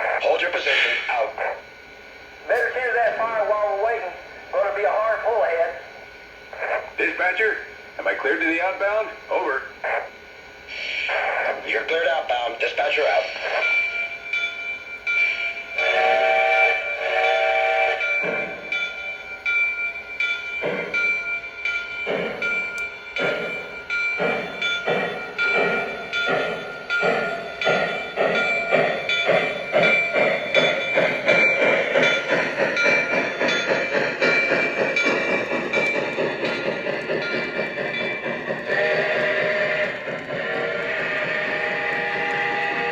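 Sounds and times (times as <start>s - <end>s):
steam locomotive chuffing: 0.0s - 42.9s
train whistle toots: 15.8s - 18.4s, 38.7s - 42.9s.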